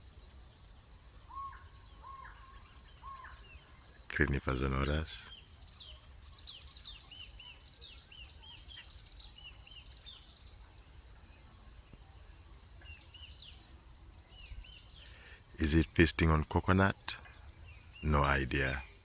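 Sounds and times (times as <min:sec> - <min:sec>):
faint bird chirps: 0:01.2 - 0:11.4.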